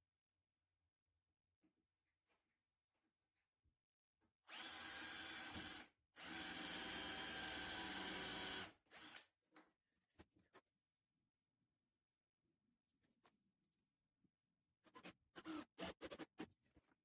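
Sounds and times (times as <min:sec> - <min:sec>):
electric drill running: 0:04.5 - 0:09.2.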